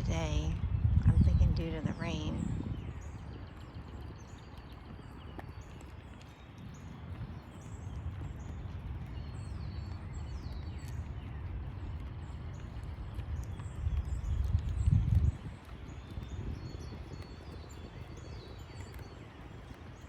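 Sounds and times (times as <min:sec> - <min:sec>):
songbirds chirping: 0:00.0 - 0:20.0
steady low rumble: 0:00.0 - 0:20.0.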